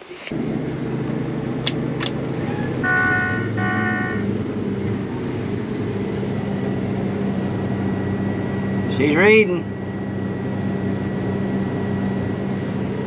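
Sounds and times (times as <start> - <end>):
combine harvester running: 0.0 - 13.0
electronic warning beeps: 2.4 - 4.3.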